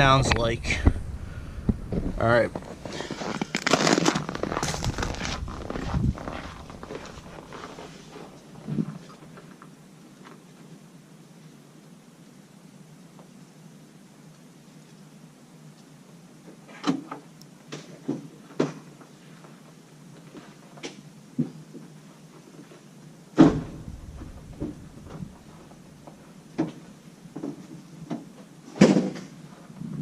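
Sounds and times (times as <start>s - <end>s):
heavy thumps: 23.4s - 26.8s
knocks and clunks: 23.4s - 26.8s.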